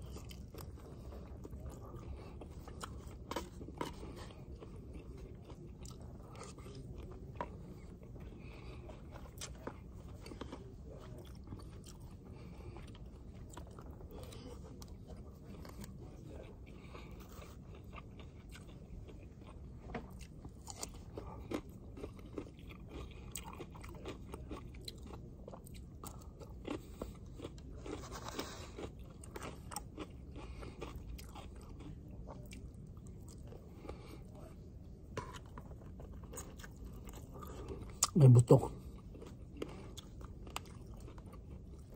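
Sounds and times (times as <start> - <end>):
chewing food: 0.0 - 41.9
low background hum: 0.0 - 41.9.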